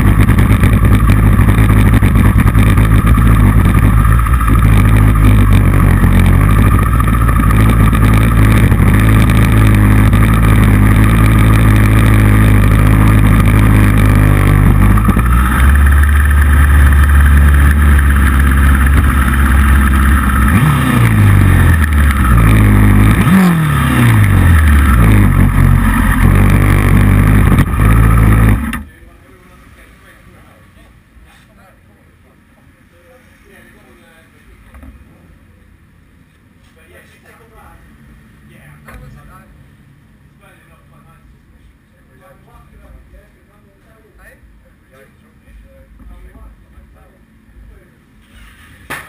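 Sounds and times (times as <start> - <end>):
motorcycle engine running hard: 0.0 - 28.9.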